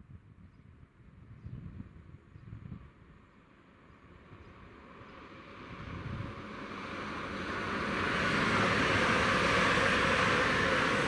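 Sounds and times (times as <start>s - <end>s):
train passing at speed: 2.8s - 11.0s.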